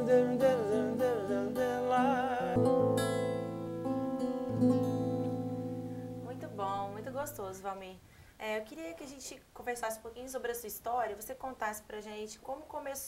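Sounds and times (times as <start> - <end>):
man singing wordlessly: 0.0 - 2.8
acoustic guitar strumming: 0.0 - 7.6.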